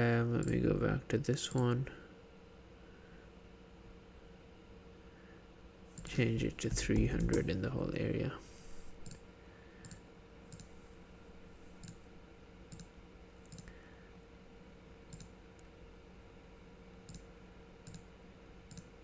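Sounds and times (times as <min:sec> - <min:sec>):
faint room hum: 0:00.0 - 0:19.0
computer mouse clicking: 0:06.0 - 0:07.5, 0:09.0 - 0:09.2, 0:09.8 - 0:10.8, 0:11.8 - 0:12.0, 0:12.7 - 0:13.8, 0:15.1 - 0:15.7, 0:17.1 - 0:18.1, 0:18.7 - 0:19.0.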